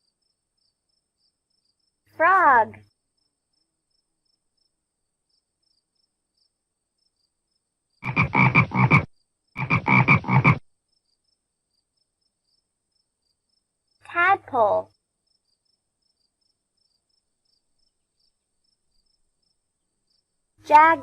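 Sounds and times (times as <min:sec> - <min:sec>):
frog croaking: 0:08.0 - 0:10.7.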